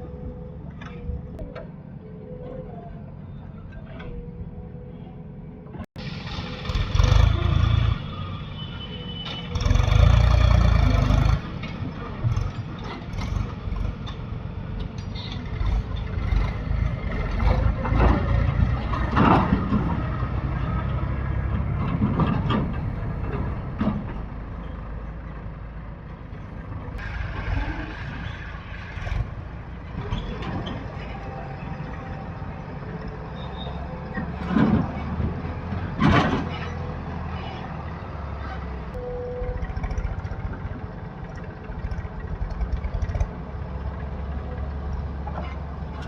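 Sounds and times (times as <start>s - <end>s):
diesel engine rumbling: 0.0s - 46.0s
machinery knocks and clanks: 10.9s - 24.6s, 34.0s - 37.0s.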